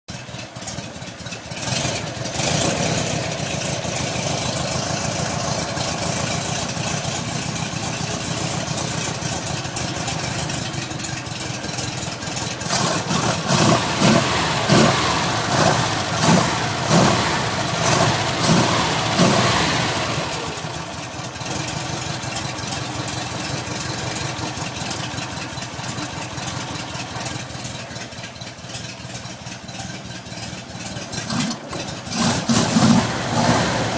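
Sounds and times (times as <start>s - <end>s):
car engine idling: 0.1s - 33.9s
engine throttle blips: 0.1s - 33.9s.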